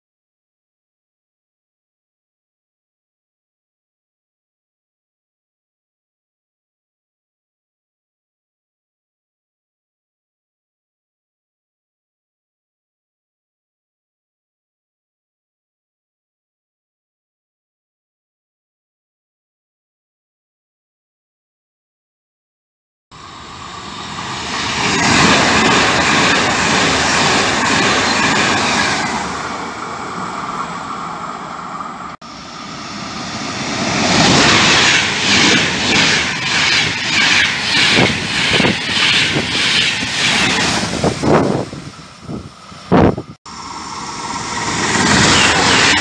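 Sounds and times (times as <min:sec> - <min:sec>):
train rushing past: 0:23.2 - 0:46.0.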